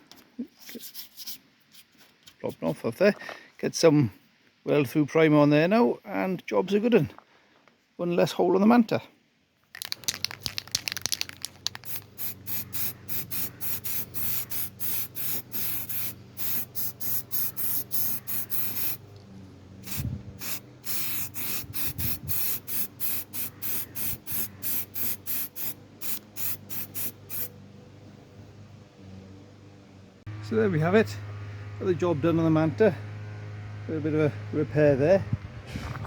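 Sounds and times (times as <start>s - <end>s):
aerosol can spraying: 9.8s - 19.0s, 19.8s - 27.5s.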